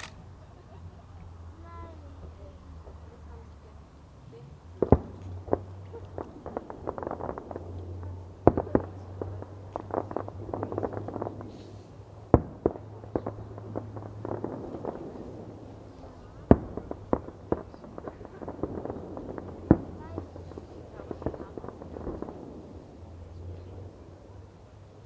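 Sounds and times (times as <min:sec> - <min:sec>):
firework crackling and pops: 0:00.0 - 0:00.2, 0:04.8 - 0:23.2
firework bangs: 0:04.8 - 0:24.4.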